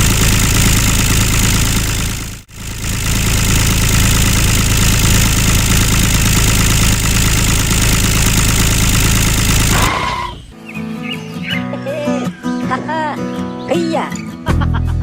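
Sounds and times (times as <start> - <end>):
tractor motor running: 0.0 - 10.5.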